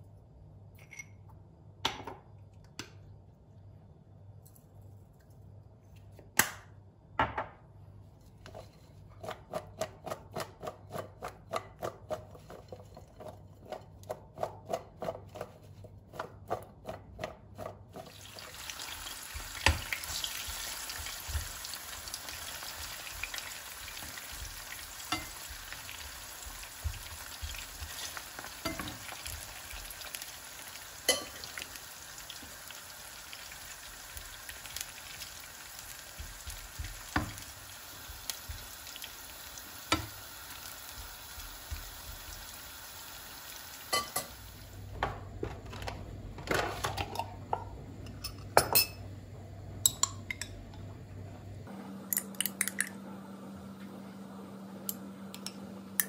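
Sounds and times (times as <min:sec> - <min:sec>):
clinks in ceramic bowl: 0:00.8 - 0:01.2, 0:48.2 - 0:49.0
food sizzling in oil: 0:18.0 - 0:44.8.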